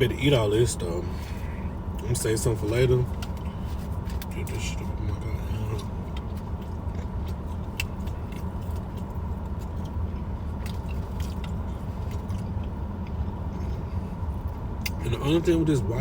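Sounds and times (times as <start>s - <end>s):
low background hum: 0.0s - 16.0s
chewing crunchy food: 3.1s - 15.0s.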